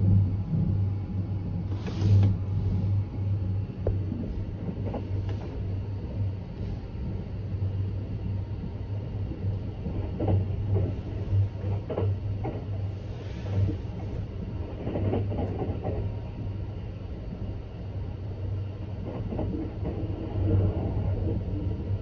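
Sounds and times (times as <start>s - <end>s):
train rumble inside car: 0.0s - 22.0s.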